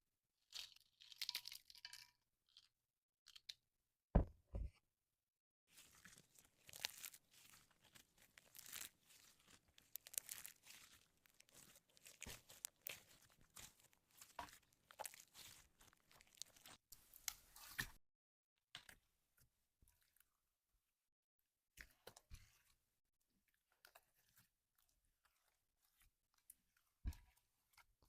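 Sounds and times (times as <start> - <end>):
sticky slime crackling and popping: 6.3 - 16.8.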